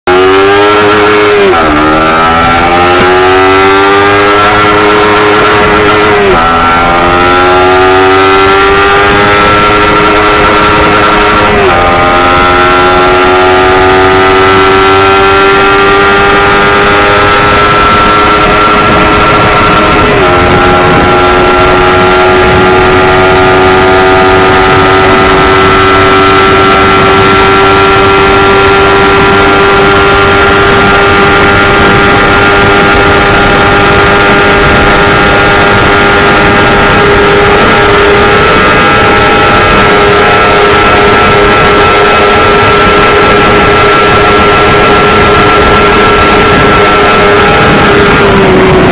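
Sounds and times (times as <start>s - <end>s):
motorcycle engine revving high: 0.0s - 48.9s.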